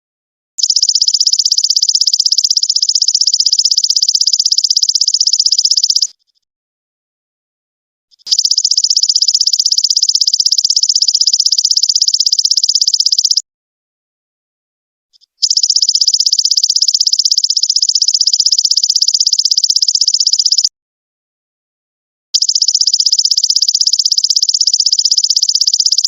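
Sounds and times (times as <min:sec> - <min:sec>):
locust high-pitched pulsing trills: 0:00.6 - 0:06.2, 0:08.3 - 0:13.4, 0:15.4 - 0:20.7, 0:22.4 - 0:26.0.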